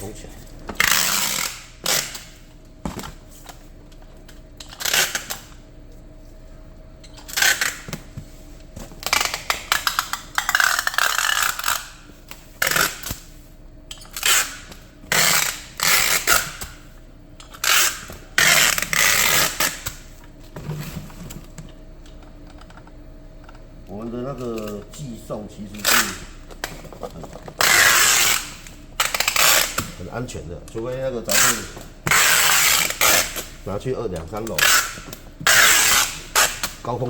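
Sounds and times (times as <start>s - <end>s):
packing tape pulled off roll: 0.8s - 2.4s, 4.6s - 5.6s, 7.2s - 8.2s, 9.0s - 13.3s, 13.9s - 16.8s, 17.4s - 20.1s, 25.7s - 26.7s, 27.5s - 30.0s, 31.3s - 33.6s, 34.5s - 36.8s.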